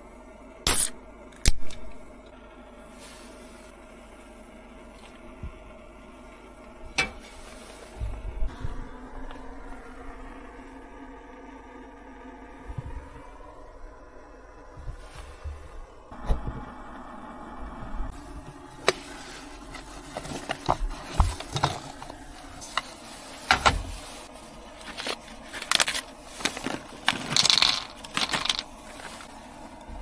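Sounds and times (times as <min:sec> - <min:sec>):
rustling scrape: 0:02.9 - 0:03.7, 0:07.1 - 0:08.8, 0:18.1 - 0:30.0
clicks and knocks of objects handled: 0:18.8 - 0:24.0, 0:24.8 - 0:29.9.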